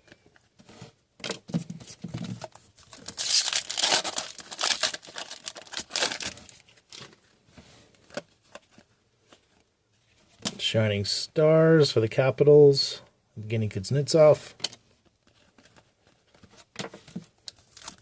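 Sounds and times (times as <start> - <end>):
wrapper tearing and crinkling: 2.9 - 7.0.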